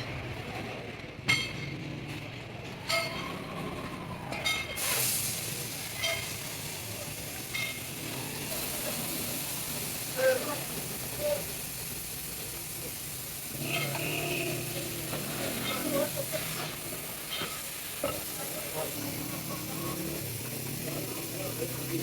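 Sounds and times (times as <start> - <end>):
steady hiss: 4.8 - 22.0.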